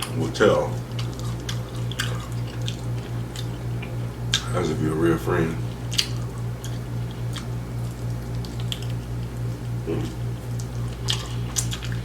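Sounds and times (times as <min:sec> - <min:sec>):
wet chewing sounds: 0:00.0 - 0:04.6, 0:05.6 - 0:12.0
steady low hum: 0:00.0 - 0:12.0
mouth clicks and smacks: 0:05.9 - 0:07.5.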